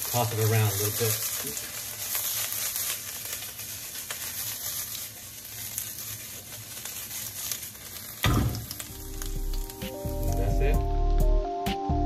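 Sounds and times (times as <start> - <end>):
food sizzling in hot oil: 0.0 - 11.3
loud short thump: 8.2 - 8.7.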